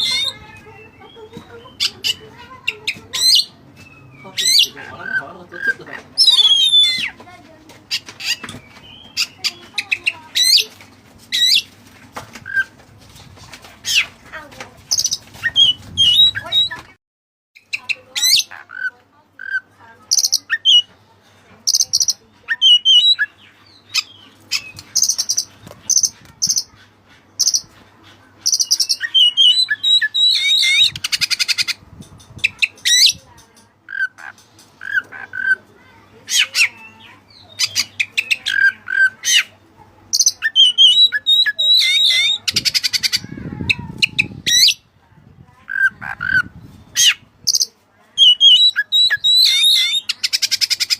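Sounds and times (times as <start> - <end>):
bird singing whistles and trills: 48.2 - 50.4.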